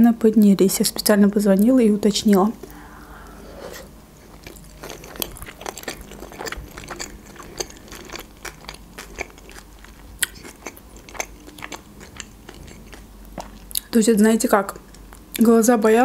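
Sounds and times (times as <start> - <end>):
crunchy chewing: 2.3 - 14.0.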